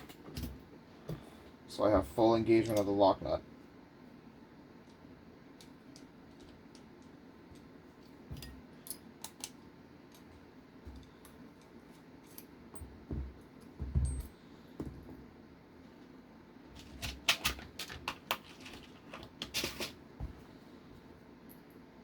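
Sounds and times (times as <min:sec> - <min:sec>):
metal screws and tools clinking: 0:08.3 - 0:10.3, 0:11.0 - 0:12.9, 0:14.0 - 0:14.4.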